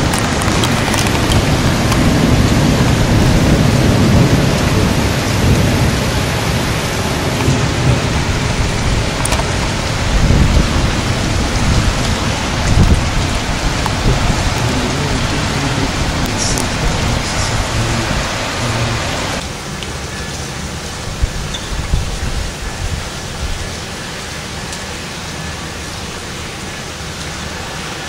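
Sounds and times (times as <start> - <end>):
thunder rumbling: 0.0 - 19.4, 21.0 - 24.0
heavy rain pouring: 0.0 - 28.0.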